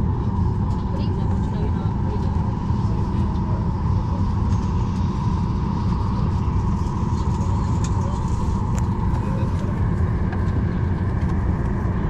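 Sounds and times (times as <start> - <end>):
air-conditioning hum: 0.0 - 12.0
airplane cabin low rumble: 0.0 - 12.0.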